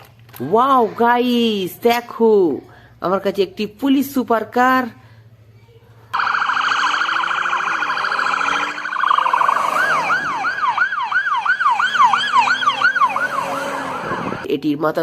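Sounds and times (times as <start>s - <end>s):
toy police car siren wailing: 6.2s - 14.5s.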